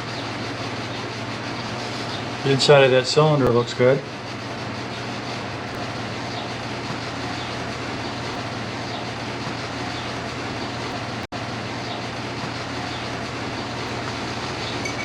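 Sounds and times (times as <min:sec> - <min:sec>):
mechanical whir and hum: 0:00.0 - 0:15.0
faint high whine: 0:14.7 - 0:15.0.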